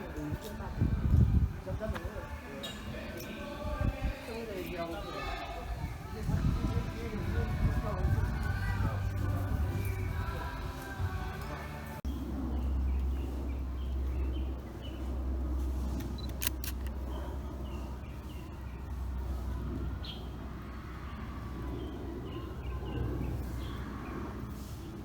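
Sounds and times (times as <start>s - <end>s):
steady low rumble: 0.0s - 4.6s, 5.5s - 25.0s
small birds chirping: 16.0s - 25.0s.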